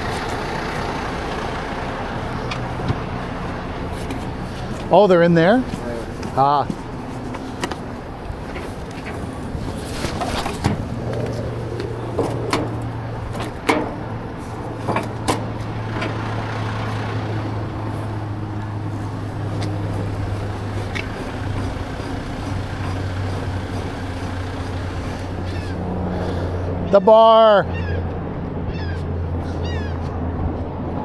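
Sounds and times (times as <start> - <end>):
diesel truck engine idling: 0.0 - 31.0
knocks and clanks of gear: 2.4 - 16.3.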